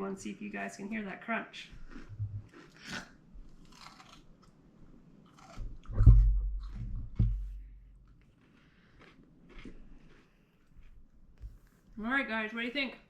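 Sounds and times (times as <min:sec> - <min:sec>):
chewing: 0:01.8 - 0:04.6, 0:08.0 - 0:11.8
crunchy bite into pickle: 0:01.9 - 0:04.5, 0:05.3 - 0:05.9.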